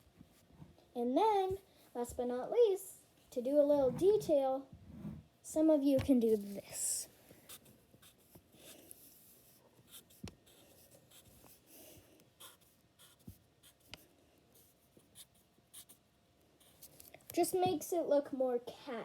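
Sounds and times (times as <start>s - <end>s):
pencil scratching on paper: 7.5s - 14.0s, 14.6s - 16.0s.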